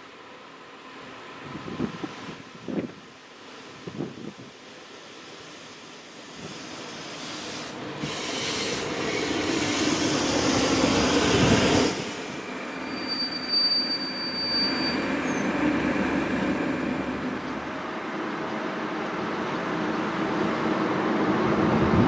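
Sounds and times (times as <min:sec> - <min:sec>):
passenger train passing: 0:00.0 - 0:22.0
thin high squeal: 0:12.4 - 0:15.6.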